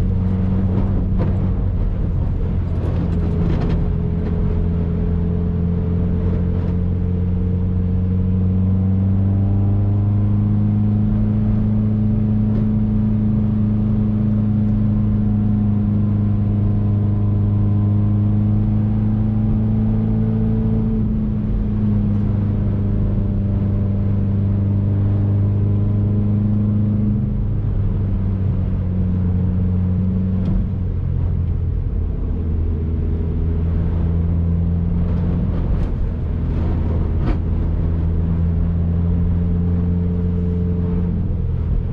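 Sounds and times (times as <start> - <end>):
car engine while driving: 0.0 - 41.9.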